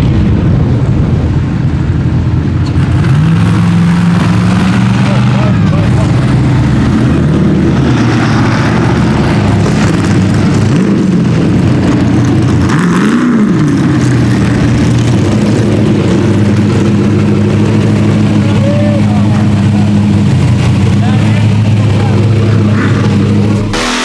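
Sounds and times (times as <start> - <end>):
race car engine revving: 0.0 - 24.0.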